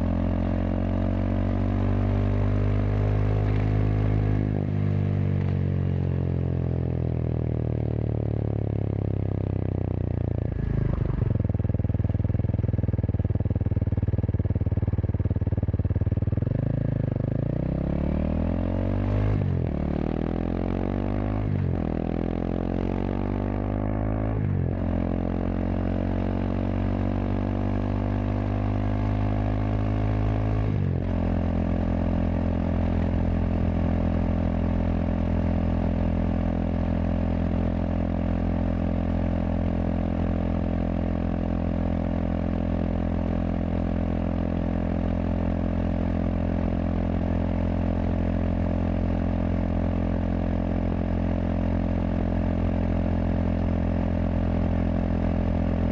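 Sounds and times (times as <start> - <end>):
motorcycle engine shifting gears: 0.0 - 5.8.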